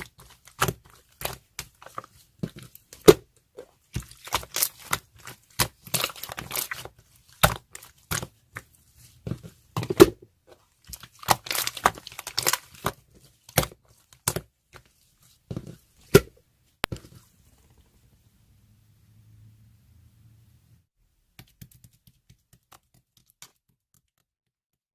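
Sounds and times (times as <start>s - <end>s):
crinkling and tearing: 4.0s - 8.3s, 10.8s - 14.2s.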